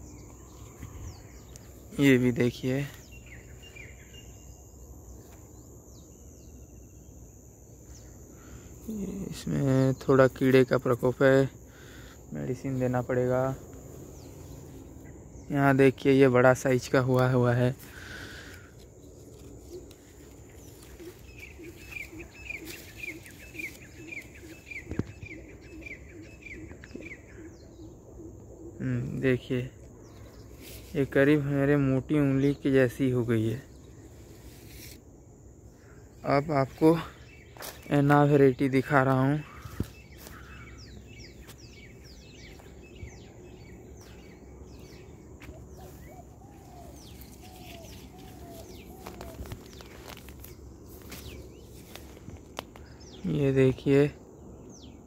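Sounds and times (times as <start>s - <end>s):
high falling bird calls: 0.0s - 55.0s
lower wavering bird call: 19.3s - 28.9s, 39.4s - 50.2s.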